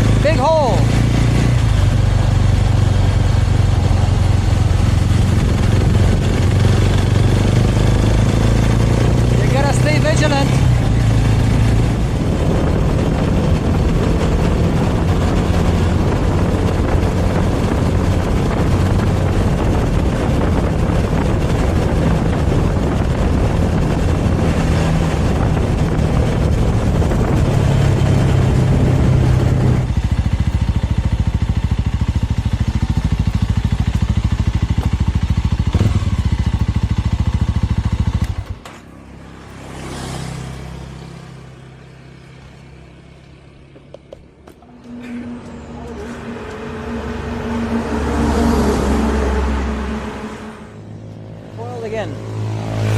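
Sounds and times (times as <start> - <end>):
motorcycle engine: 0.0 - 52.9
wind rush: 1.0 - 30.3.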